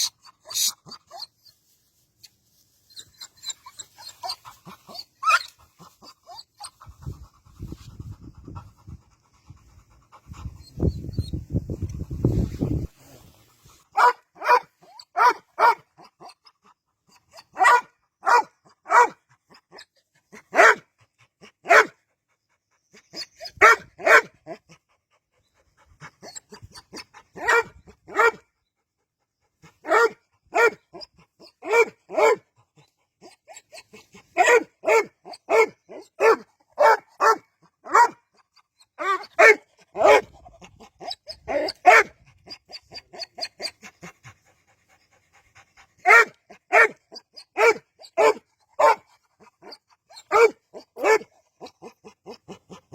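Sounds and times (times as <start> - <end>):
dog barking: 13.9 - 15.9, 17.5 - 19.2, 20.5 - 20.8, 21.6 - 22.0, 23.6 - 24.4, 27.4 - 28.4, 29.8 - 30.8, 31.6 - 32.5, 34.3 - 38.2, 39.0 - 40.3, 41.5 - 42.1, 46.0 - 51.9.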